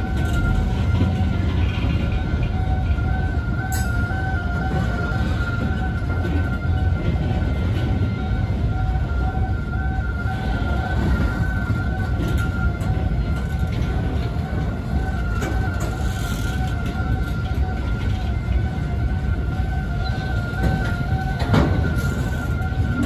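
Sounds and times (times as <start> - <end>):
constant high-pitched whine: 0.0 - 23.0
freight train wheels rumbling: 0.0 - 23.0.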